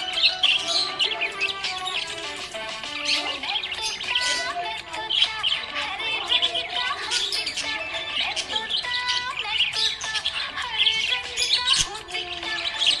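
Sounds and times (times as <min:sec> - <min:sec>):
budgerigars chirping: 0:00.0 - 0:13.0.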